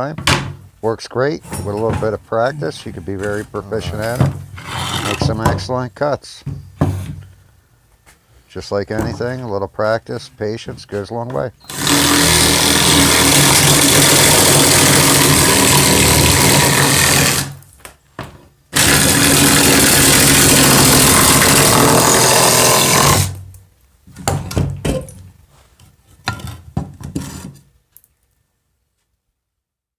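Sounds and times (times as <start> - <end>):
electric drill cutting slate: 11.7 - 17.6, 18.8 - 23.4.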